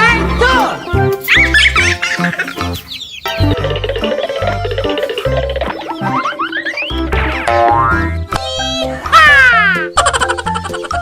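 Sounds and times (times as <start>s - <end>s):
playful background music: 0.0s - 11.0s
cartoon descending pitch slide: 6.0s - 9.9s.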